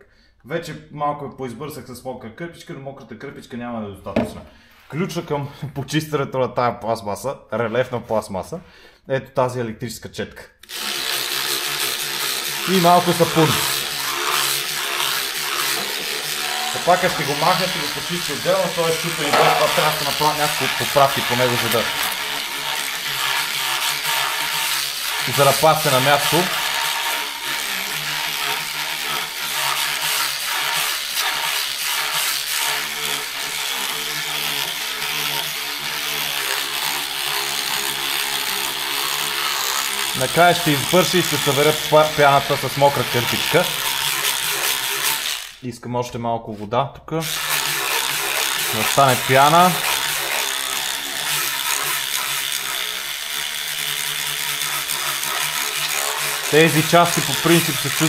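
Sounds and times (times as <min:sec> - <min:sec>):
electric brush motor humming: 0:10.6 - 0:45.6, 0:47.2 - 0:58.0
bristles scrubbing plastic: 0:10.7 - 0:45.6, 0:47.2 - 0:58.0.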